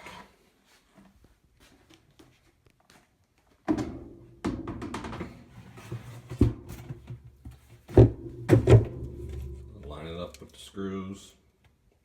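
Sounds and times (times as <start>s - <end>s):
clunks and knocks of washer tub: 3.6s - 10.0s.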